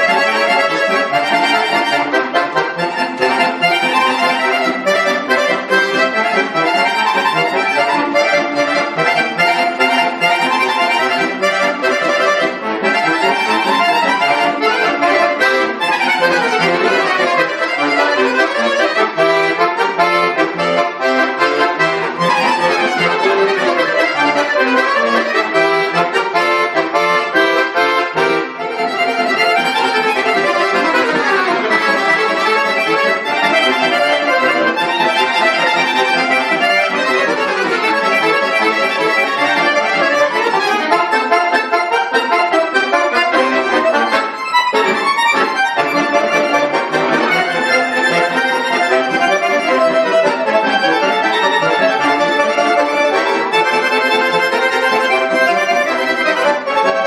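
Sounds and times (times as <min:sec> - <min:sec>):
button accordion playing: 0:00.0 - 0:57.0.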